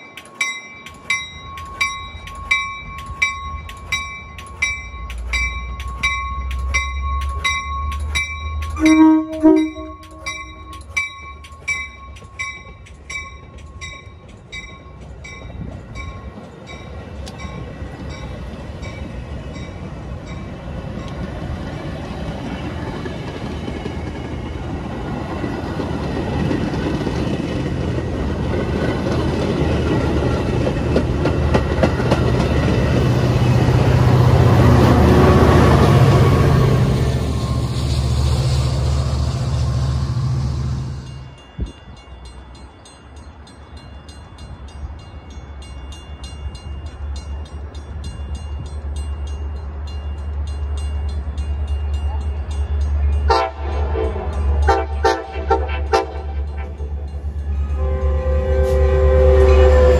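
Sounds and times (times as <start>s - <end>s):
bell ringing: 0.0s - 18.2s
train rumble: 0.0s - 59.9s
train horn toot: 8.8s - 10.8s, 53.3s - 59.9s.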